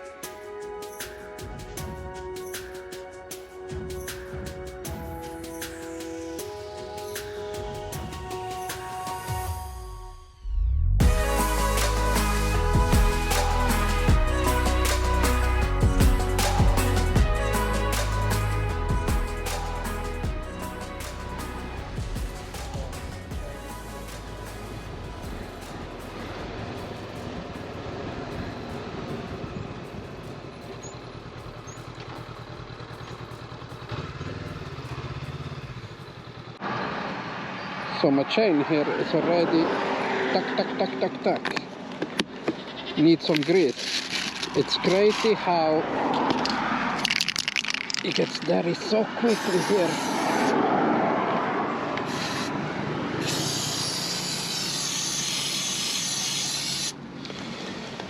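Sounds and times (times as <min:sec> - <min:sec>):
wind and road noise: 0:10.4 - 0:58.0
motorcycle engine running: 0:26.2 - 0:36.6
aerosol spray hissing: 0:49.3 - 0:50.6, 0:53.2 - 0:57.0.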